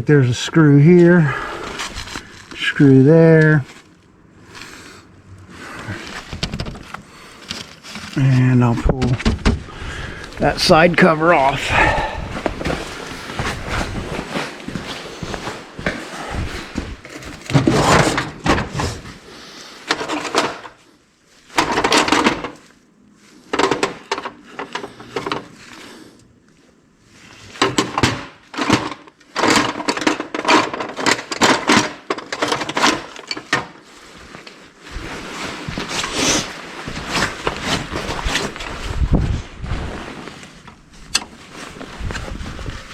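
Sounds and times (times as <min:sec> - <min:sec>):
clicks and knocks of hand work: 0:19.8 - 0:20.8, 0:21.5 - 0:22.8, 0:23.5 - 0:25.6, 0:27.5 - 0:34.6.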